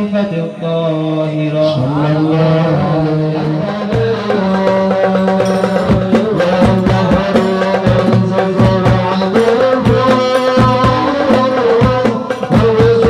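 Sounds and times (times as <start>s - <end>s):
voices singing: 0.0s - 13.0s
hand drums beating: 3.4s - 13.0s.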